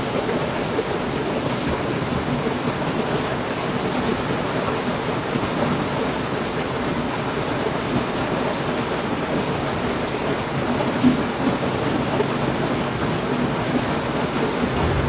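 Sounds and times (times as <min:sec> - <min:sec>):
heavy rain falling: 0:11.5 - 0:15.0.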